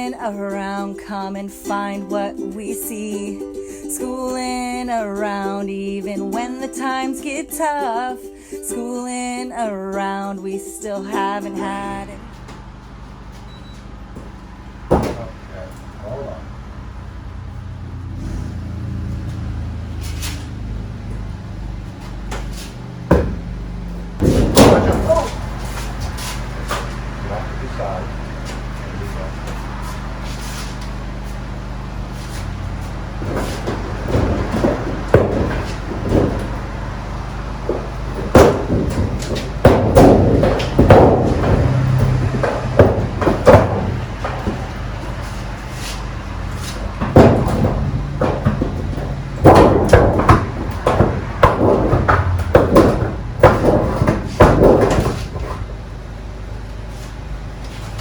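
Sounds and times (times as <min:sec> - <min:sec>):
steady low hum: 0:11.3 - 0:58.0
metal knocks and rattles: 0:16.8 - 0:56.2.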